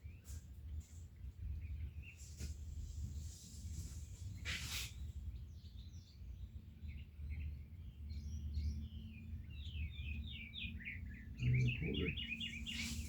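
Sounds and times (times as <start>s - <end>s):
small birds chirping: 0.0s - 13.0s
brief hissing noise: 4.4s - 5.0s.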